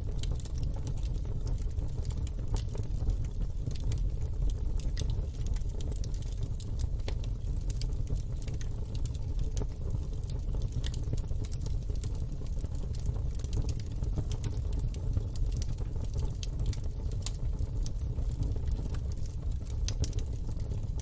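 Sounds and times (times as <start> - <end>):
low rumble of flames: 0.0 - 21.0
wood fire crackling and popping: 0.0 - 21.0.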